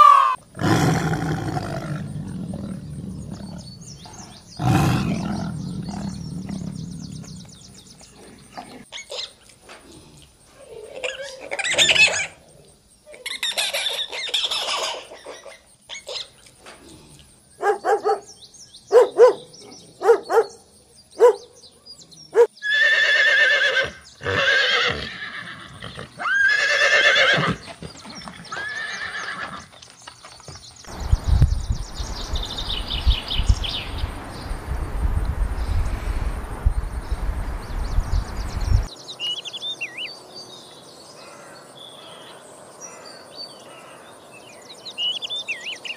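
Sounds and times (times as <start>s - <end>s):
animal calls: 0.0s - 9.5s, 10.5s - 17.0s
bird chirping: 1.2s - 22.9s, 25.8s - 45.9s.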